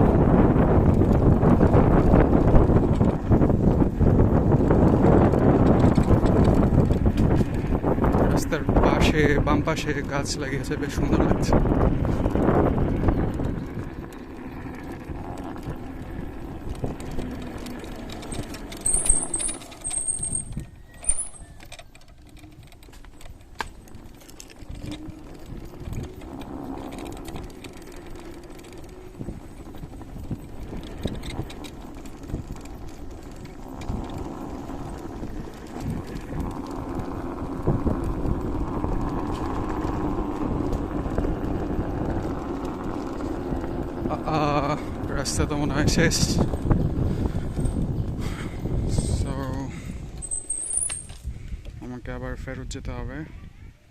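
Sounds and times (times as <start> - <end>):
scooter rattling and clicking: 0.0 - 52.1
electric scooter ride rumble: 0.0 - 53.9
high squeaks: 17.0 - 36.2, 50.2 - 51.3.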